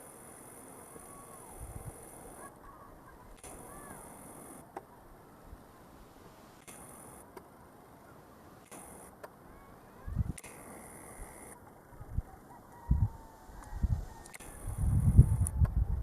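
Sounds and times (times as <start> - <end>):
high insect hum: 0.0 - 15.7
light clicks: 10.3 - 10.7.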